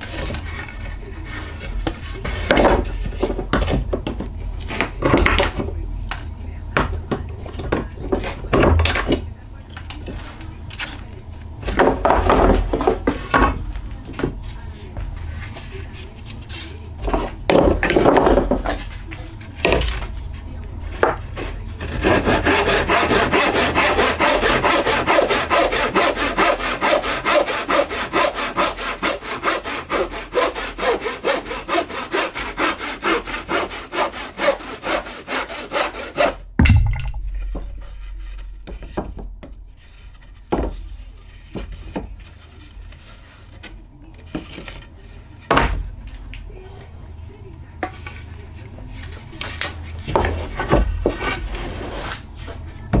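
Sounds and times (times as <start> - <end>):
hand saw cutting wood: 21.0 - 36.4.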